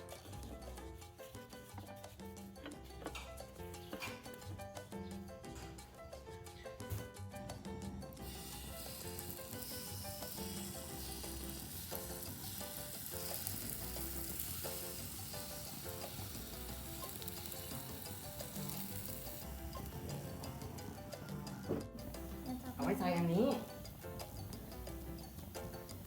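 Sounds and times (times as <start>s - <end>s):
light background music: 0.0s - 26.0s
batter sizzling in a pan: 8.2s - 26.0s.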